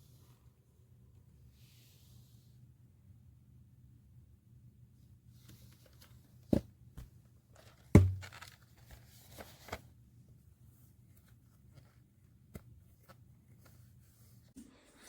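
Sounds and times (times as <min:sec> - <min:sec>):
handling clicks and rustles: 0:05.5 - 0:09.8
knock: 0:08.0 - 0:08.2
loud thump: 0:08.0 - 0:08.2.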